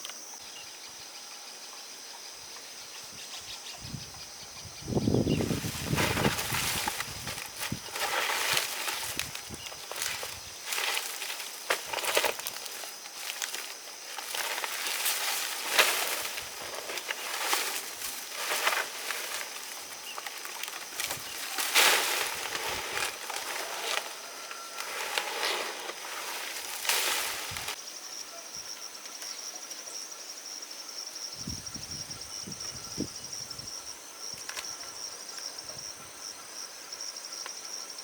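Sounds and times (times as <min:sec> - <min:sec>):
insects chirring: 0:00.0 - 0:38.0
dry stalks rustling: 0:04.9 - 0:27.8.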